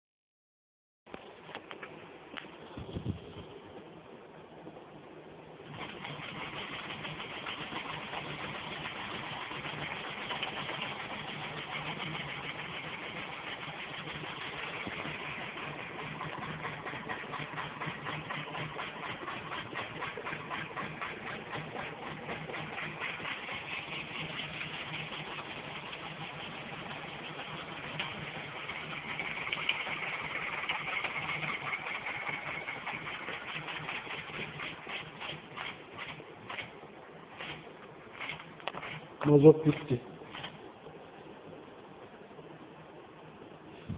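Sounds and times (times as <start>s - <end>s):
low steady hum: 1.1s - 43.9s
steam engine chuffing: 5.7s - 36.6s.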